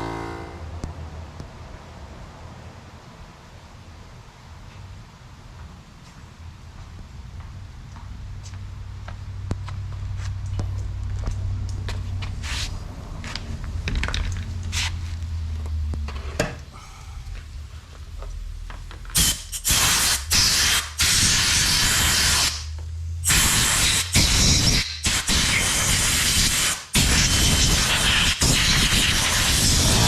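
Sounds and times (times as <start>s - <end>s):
low hum: 0.0s - 2.9s, 6.4s - 20.3s, 22.6s - 23.5s
compressed air hissing blasts: 14.4s - 15.2s, 16.7s - 30.0s.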